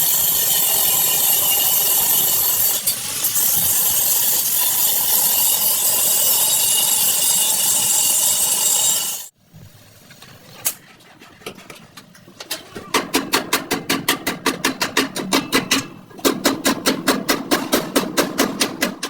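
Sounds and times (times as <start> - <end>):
hammer striking car body metal: 13.1 - 19.0.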